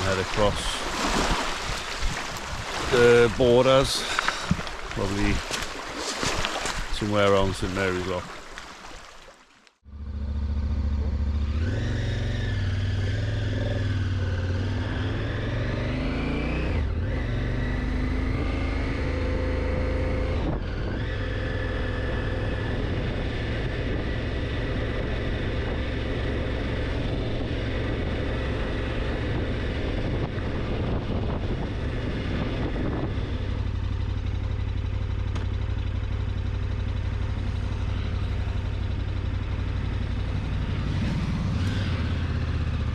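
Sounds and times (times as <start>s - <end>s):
wind noise: 0.0s - 8.6s, 29.0s - 33.7s
motorcycle engine accelerating: 9.8s - 42.9s.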